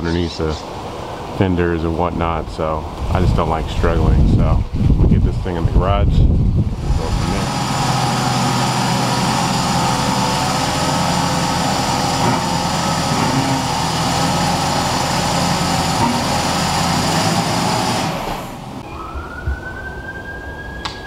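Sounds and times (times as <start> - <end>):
car engine idling: 6.6 - 18.8.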